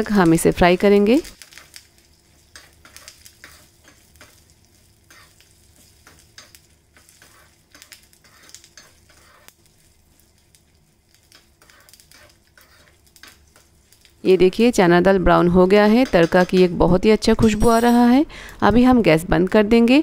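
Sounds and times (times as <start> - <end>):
spices sizzling faintly in ghee: 0.0 - 20.0
metal spoon scraping pan: 2.4 - 4.4, 5.0 - 9.6, 11.2 - 14.0, 15.7 - 18.0.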